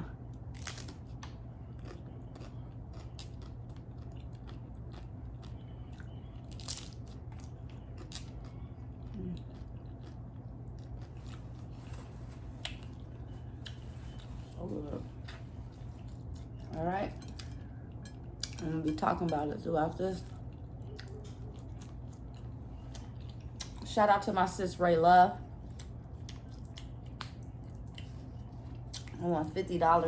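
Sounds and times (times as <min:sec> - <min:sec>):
low hum: 0:00.0 - 0:30.0
crunchy taco chewing: 0:00.1 - 0:18.6.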